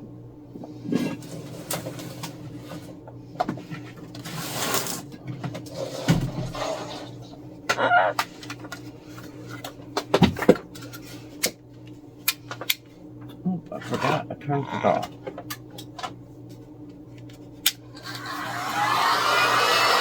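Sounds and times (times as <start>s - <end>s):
faint steady hum: 0.0s - 18.9s
parrot calling: 7.7s - 8.2s.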